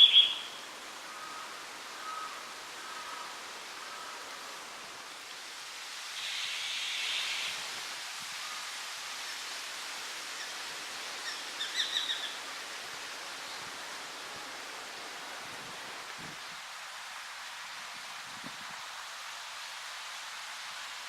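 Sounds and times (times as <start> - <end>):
bird call notes: 0.0 - 0.6
outdoor hiss: 0.0 - 21.0.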